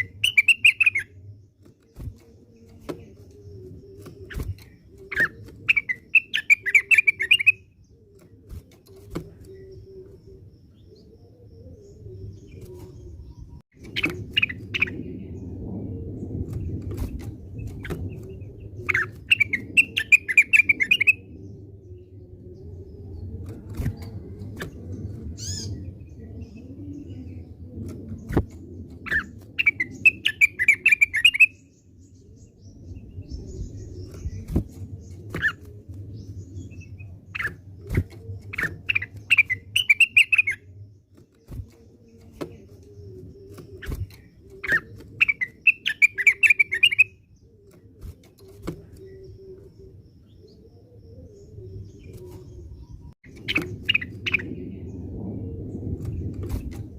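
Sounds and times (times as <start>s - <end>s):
bird chirping song: 0.0s - 56.9s
steady low rumble: 9.8s - 30.8s, 48.9s - 56.9s.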